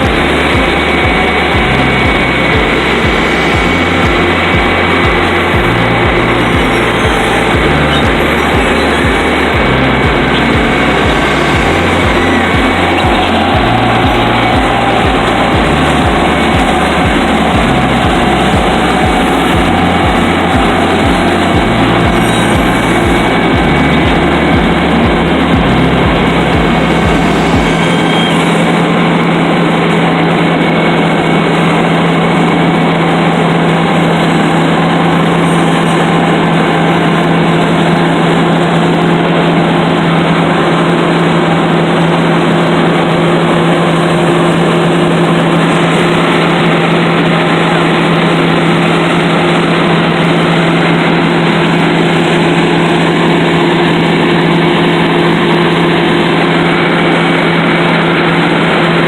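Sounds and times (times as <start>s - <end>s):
road milling machine engine drone: 0.0s - 59.0s.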